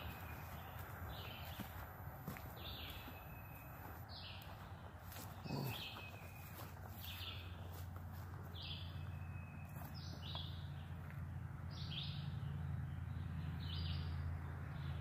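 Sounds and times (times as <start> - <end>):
bird calling: 5.2 - 7.7.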